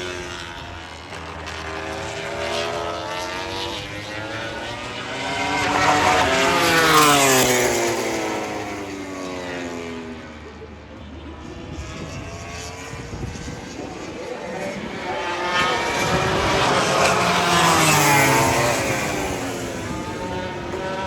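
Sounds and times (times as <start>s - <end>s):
race bike engines passing: 0.0s - 21.0s.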